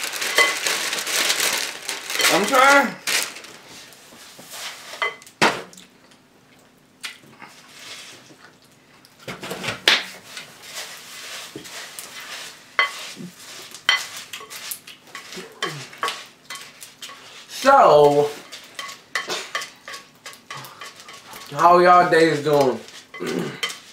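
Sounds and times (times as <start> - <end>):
spoons clinking in cereal bowls: 0.0 - 2.8, 5.0 - 5.3, 10.7 - 23.9.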